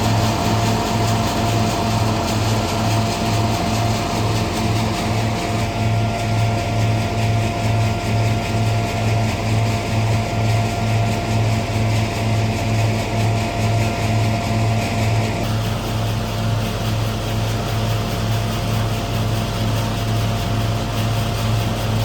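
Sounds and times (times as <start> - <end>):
threshing machine humming: 0.0 - 8.2.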